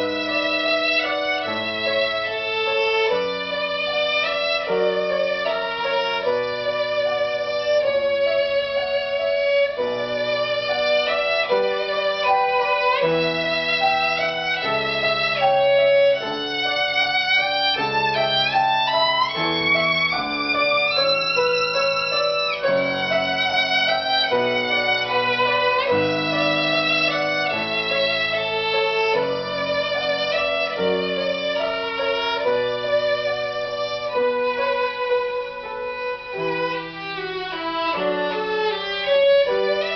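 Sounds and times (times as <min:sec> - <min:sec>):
violin melody with vibrato: 0:00.0 - 0:39.9.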